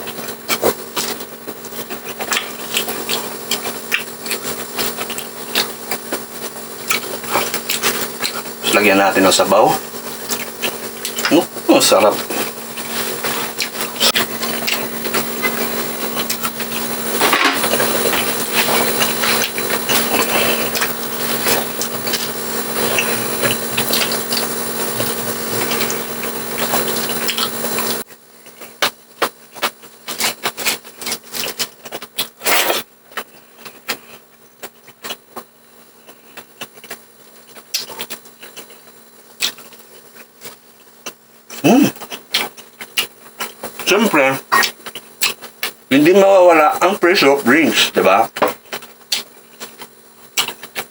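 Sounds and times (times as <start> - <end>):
background hum: 0.0 - 50.9
chewing: 1.9 - 8.6, 10.1 - 11.6, 12.2 - 28.0, 41.0 - 43.8, 44.4 - 45.8, 50.4 - 50.8.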